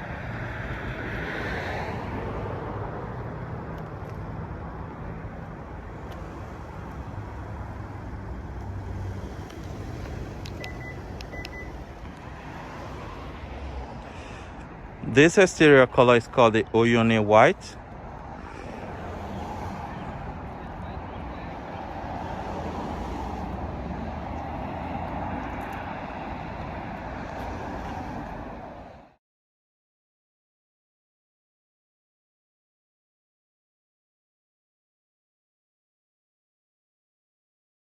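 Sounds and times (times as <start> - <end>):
low vehicle rumble: 0.0 - 29.1.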